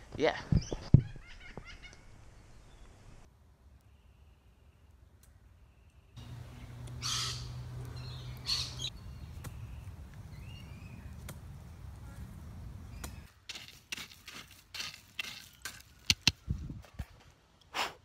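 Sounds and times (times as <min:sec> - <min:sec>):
birds calling harshly: 0:06.2 - 0:11.1.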